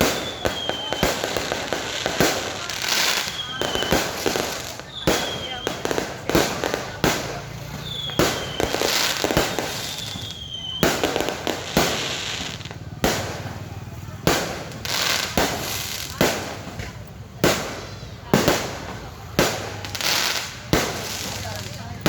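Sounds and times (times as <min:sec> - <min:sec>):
falling whistles: 0:00.0 - 0:01.0, 0:03.1 - 0:04.1, 0:04.8 - 0:05.8, 0:07.8 - 0:11.0
fireworks bangs: 0:00.0 - 0:22.0
fireworks crackling: 0:00.0 - 0:22.0.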